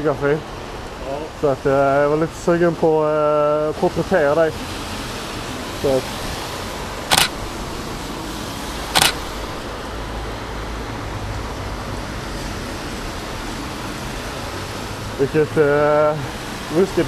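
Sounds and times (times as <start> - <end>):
street and traffic noise: 0.0 - 17.0
camera shutter clicking: 7.1 - 7.8, 9.0 - 9.6.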